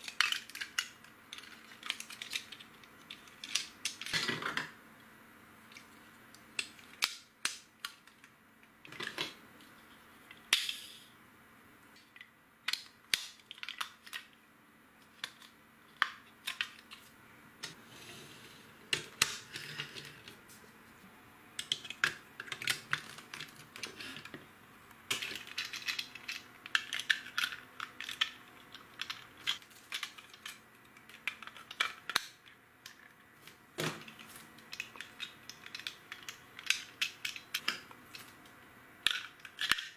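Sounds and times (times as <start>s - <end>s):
plastic pieces clicking: 0.0s - 4.7s, 12.1s - 14.4s, 15.0s - 17.0s, 21.6s - 24.4s, 25.1s - 33.1s, 33.8s - 38.4s, 39.0s - 39.9s.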